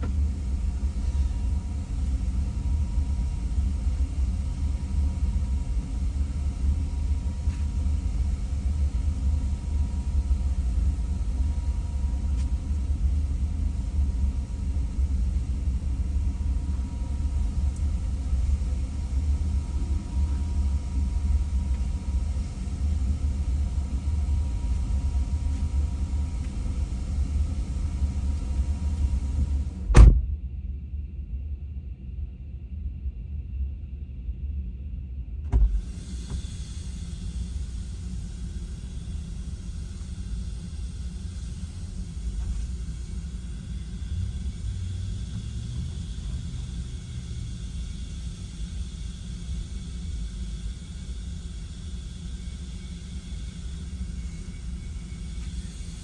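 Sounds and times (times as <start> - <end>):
car rumbling on the move: 0.0 - 30.2, 40.0 - 50.3.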